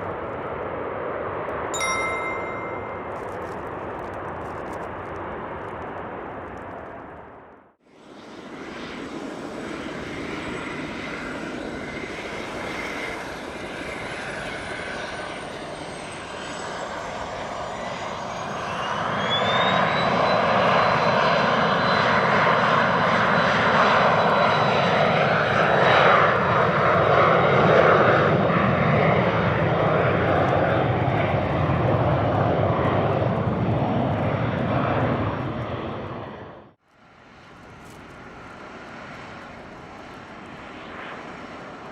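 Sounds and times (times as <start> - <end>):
jet landing: 0.0 - 41.9
high-pitched tone: 1.8 - 3.5.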